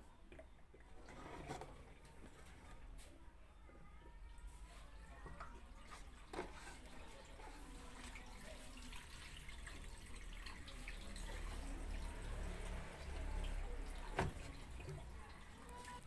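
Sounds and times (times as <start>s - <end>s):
water running and dripping: 5.3s - 16.0s.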